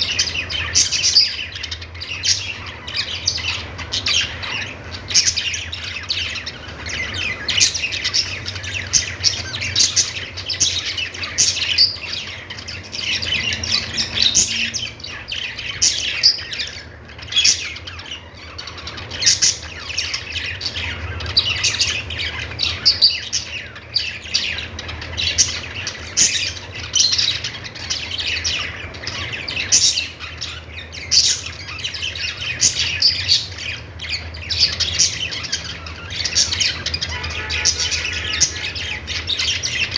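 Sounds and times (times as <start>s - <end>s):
budgerigars chirping and warbling: 0.0s - 39.9s
budgerigars squawking: 0.0s - 39.9s.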